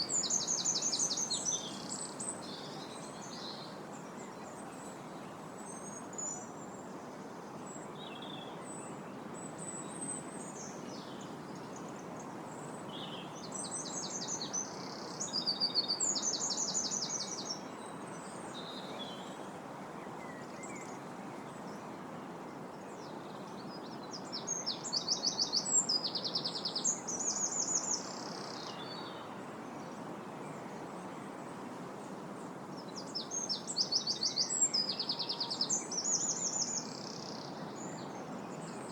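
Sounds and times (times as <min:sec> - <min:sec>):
wind blowing through trees: 0:00.0 - 0:38.9.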